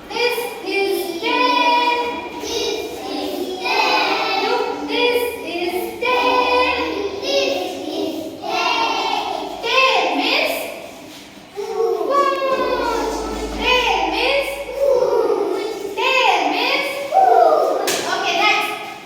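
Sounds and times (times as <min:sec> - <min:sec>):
children singing in unison: 0:01.3 - 0:05.2, 0:05.8 - 0:09.6, 0:12.5 - 0:16.0.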